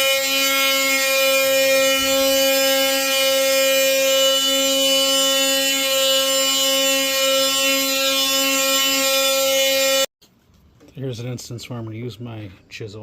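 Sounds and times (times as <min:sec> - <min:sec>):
oscillating multi-tool buzzing: 0:00.0 - 0:10.1.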